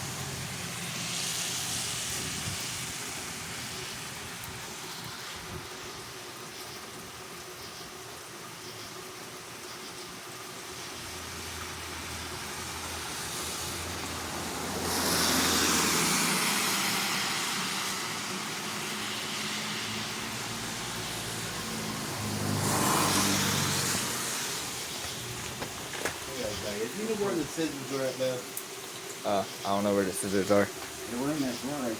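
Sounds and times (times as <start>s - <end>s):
tyres hissing on wet road: 0.0s - 31.9s.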